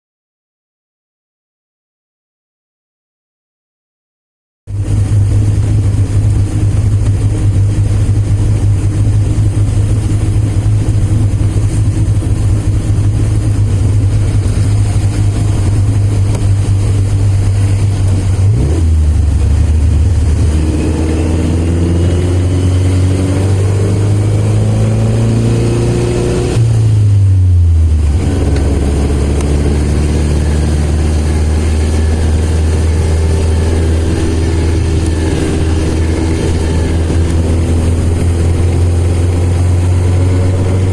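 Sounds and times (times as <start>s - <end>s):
car engine droning: 4.7s - 40.9s.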